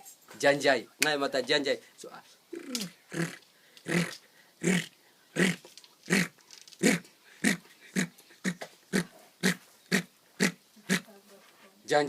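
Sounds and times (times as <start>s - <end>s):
man imitating animal call: 2.5s - 11.1s.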